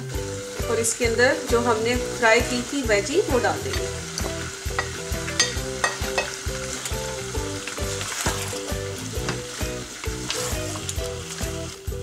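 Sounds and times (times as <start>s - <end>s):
food sizzling in a wok: 0.0s - 12.0s
spatula scraping and knocking pan: 2.6s - 11.6s.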